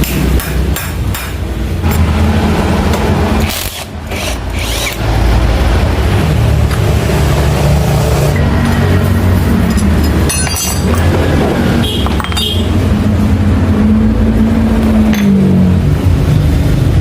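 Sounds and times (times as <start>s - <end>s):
engine running: 0.0s - 17.0s
metallic clinks: 9.6s - 11.1s.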